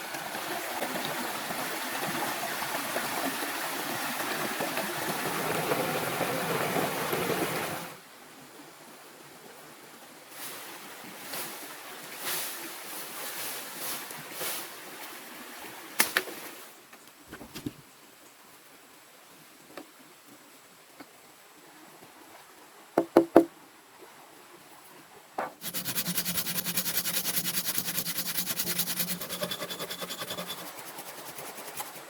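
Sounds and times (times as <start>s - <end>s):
flowing water rushing: 25.6s - 32.0s.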